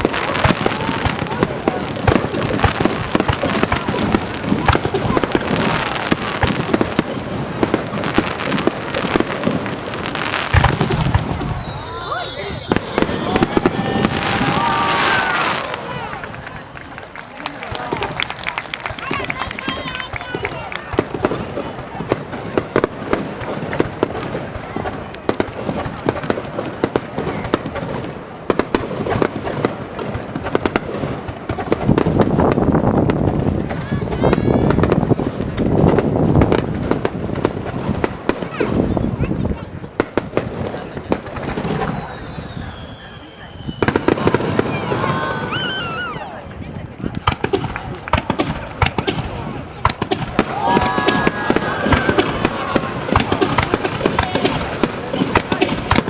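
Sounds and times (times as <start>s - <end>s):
fireworks crackling: 0.0s - 56.0s.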